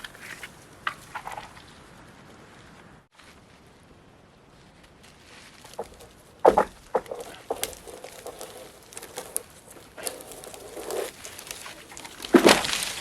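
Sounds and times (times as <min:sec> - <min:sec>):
tree crashing down: 0:05.2 - 0:13.0
dead wood cracking and snapping: 0:05.5 - 0:13.0.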